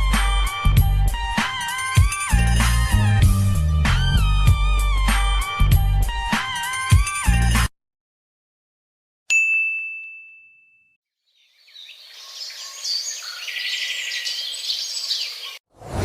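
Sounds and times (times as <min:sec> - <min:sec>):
bright ding: 0:09.3 - 0:11.0
many birds chirping: 0:11.3 - 0:15.6.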